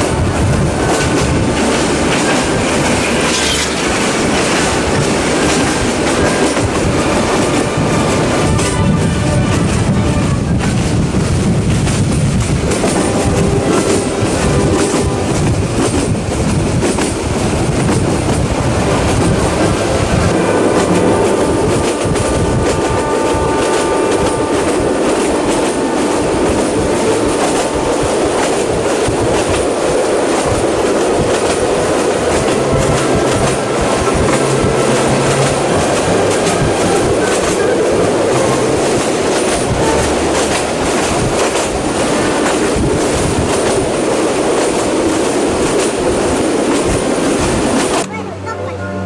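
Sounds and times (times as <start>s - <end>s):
train rumbling: 0.0s - 49.0s
wheels clicking over rail joints: 23.6s - 48.2s.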